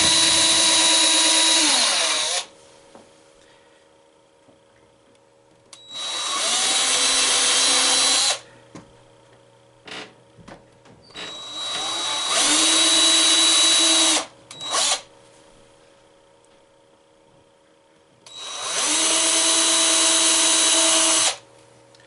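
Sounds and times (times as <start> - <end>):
power drill boring into wood: 0.0 - 2.5, 5.9 - 8.4, 11.2 - 15.0, 18.3 - 21.4.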